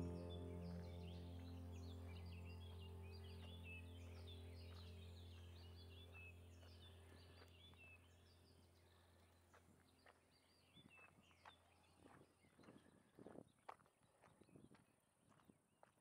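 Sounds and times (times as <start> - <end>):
low droning hum: 0.0 - 9.1
faint birds chirping: 0.0 - 14.7.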